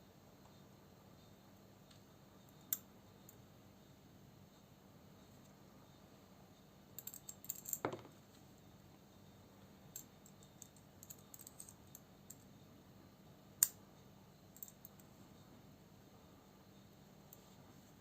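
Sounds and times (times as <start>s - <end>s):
small metal parts clicking: 7.0s - 8.0s, 9.9s - 12.4s.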